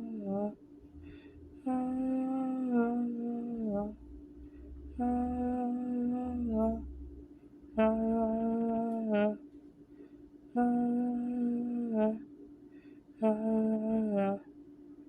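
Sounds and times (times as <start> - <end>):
person humming held notes: 0.0 - 4.2, 4.8 - 7.0, 7.8 - 9.5, 10.5 - 12.3, 13.2 - 14.4.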